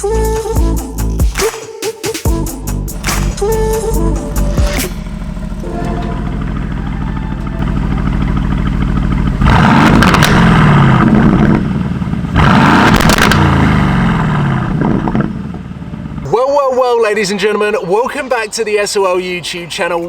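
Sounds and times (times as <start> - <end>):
car engine idling and revving: 2.3 - 16.7
exhaust crackles: 2.3 - 20.0.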